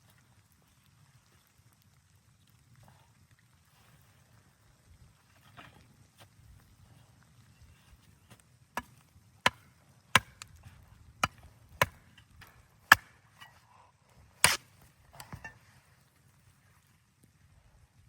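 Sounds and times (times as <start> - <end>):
axe chopping wood: 8.8 - 13.5, 14.4 - 15.6.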